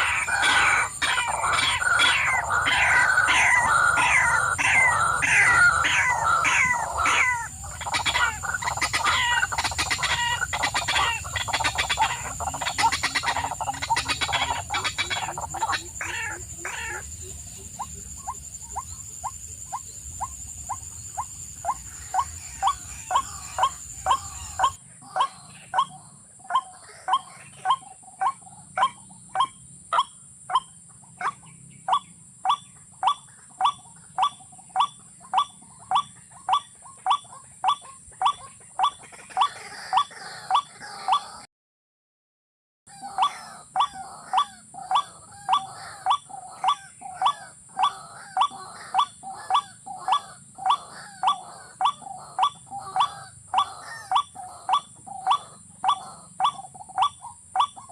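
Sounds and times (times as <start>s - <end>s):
steady high-pitched whine: 0.0s - 25.5s
birds chirping: 0.0s - 30.1s, 31.5s - 41.5s, 42.9s - 57.9s
bird call repeated evenly: 0.0s - 41.5s, 42.9s - 57.9s.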